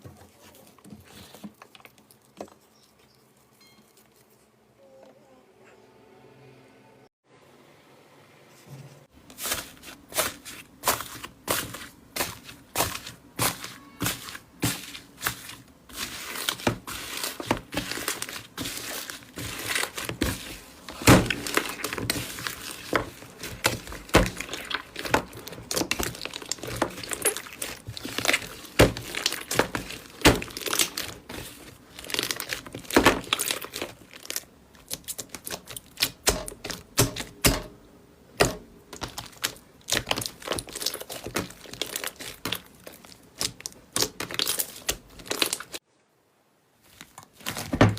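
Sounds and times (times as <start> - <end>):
slime squishing with sticky pops: 9.4 - 37.7, 38.4 - 45.8.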